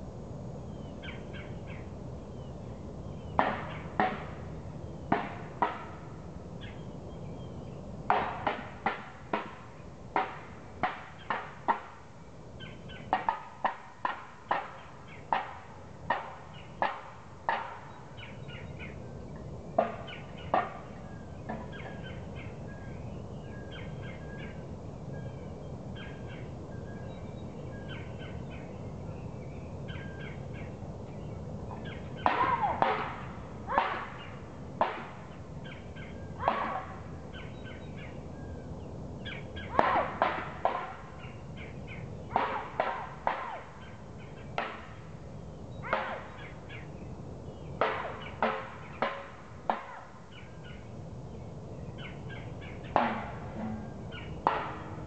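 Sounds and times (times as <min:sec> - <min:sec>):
low background rumble: 0:00.0 - 0:55.0
loud sharp bird notes: 0:12.6 - 0:50.9, 0:51.8 - 0:55.0
birds chattering: 0:12.6 - 0:55.0.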